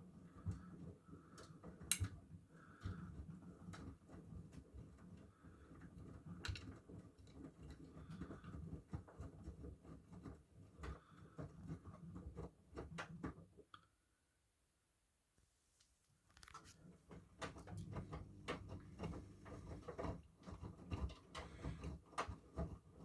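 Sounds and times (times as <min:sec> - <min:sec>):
washing machine rumbling: 0:17.0 - 0:23.0.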